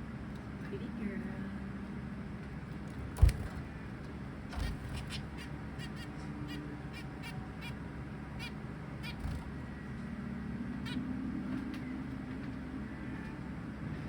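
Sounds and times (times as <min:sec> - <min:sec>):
zebra finches calling: 0:04.5 - 0:10.1, 0:10.8 - 0:11.9.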